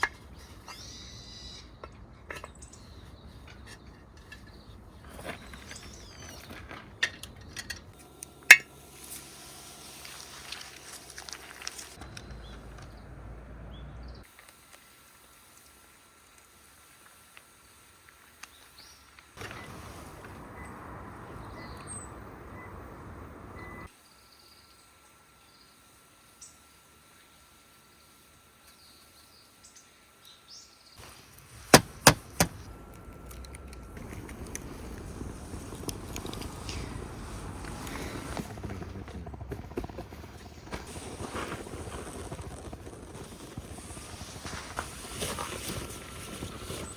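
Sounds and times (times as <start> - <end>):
faint birds chirping: 0.0 - 7.7, 12.0 - 14.3, 18.4 - 38.7
quiet outdoor background: 0.0 - 46.9
camp gear clinking and knocking: 1.8 - 8.7
small crackles: 9.0 - 13.0, 14.2 - 21.9, 31.0 - 46.9.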